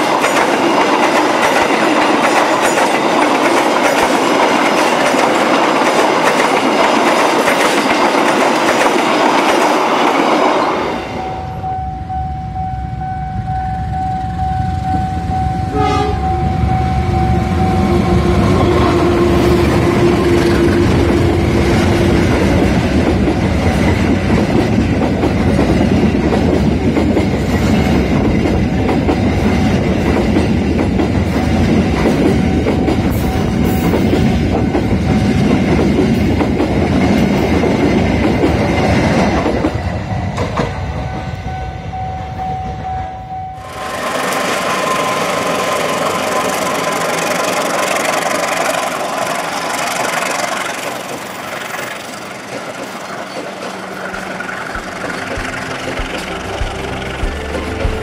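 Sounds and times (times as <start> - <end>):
train coaches rolling on rails: 0.0 - 58.0
diesel locomotive engine rumble: 11.2 - 58.0
train horn tones: 15.6 - 21.4, 54.1 - 58.0.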